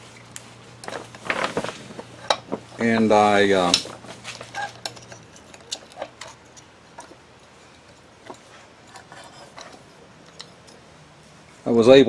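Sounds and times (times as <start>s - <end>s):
metal parts clicking: 0.8s - 10.9s.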